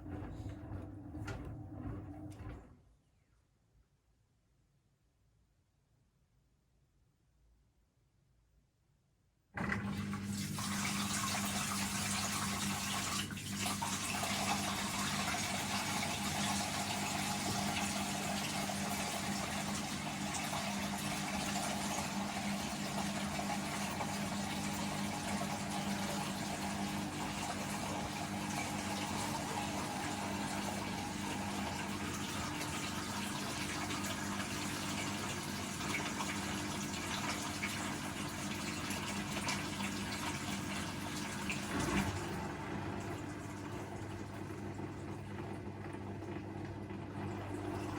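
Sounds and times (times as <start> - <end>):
washing machine water rushing: 0.0 - 2.9, 9.6 - 47.9.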